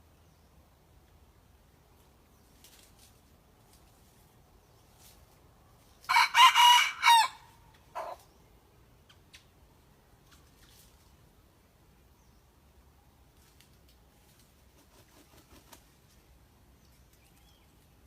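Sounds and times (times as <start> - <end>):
young rooster crowing: 6.1 - 8.2.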